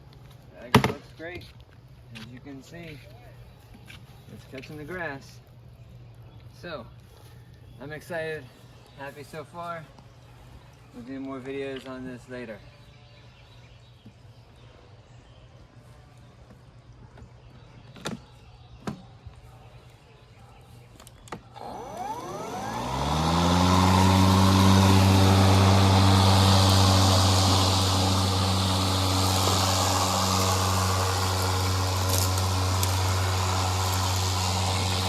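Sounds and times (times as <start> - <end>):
electric lawnmower motor humming: 21.5 - 35.0.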